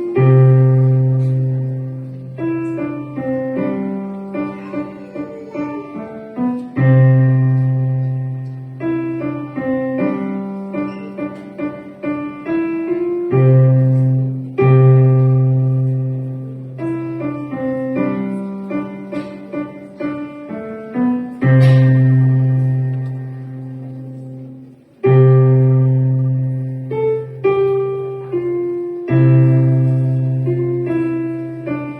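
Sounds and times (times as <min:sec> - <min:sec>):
piano children's song melody: 0:00.0 - 0:31.9.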